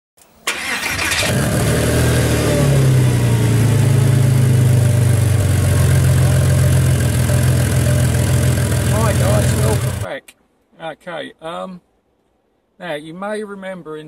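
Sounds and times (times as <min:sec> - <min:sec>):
car engine starting and running: 0:00.4 - 0:10.1.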